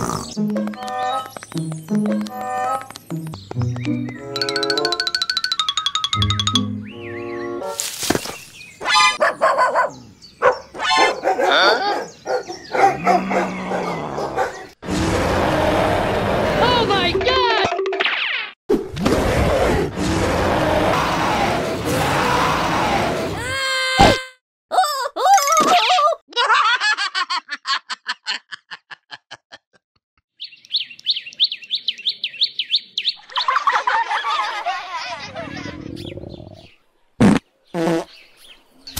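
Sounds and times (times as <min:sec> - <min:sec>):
high bird chirping: 0:03.4 - 0:07.7, 0:11.9 - 0:14.5, 0:30.4 - 0:33.6
mix of bird calls: 0:06.8 - 0:14.8, 0:30.4 - 0:33.8, 0:35.1 - 0:36.9
small dog barking: 0:09.2 - 0:14.7.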